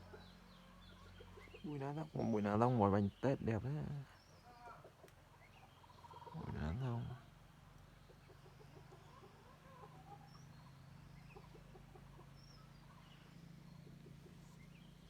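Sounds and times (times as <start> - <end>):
bird chirps and calls: 0.0 - 7.3.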